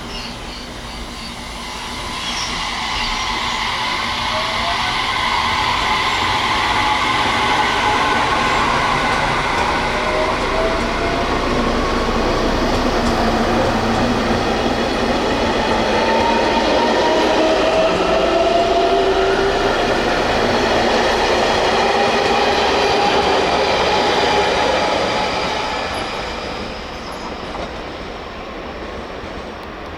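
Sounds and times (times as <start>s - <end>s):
electric train motors whining: 0.2s - 27.8s.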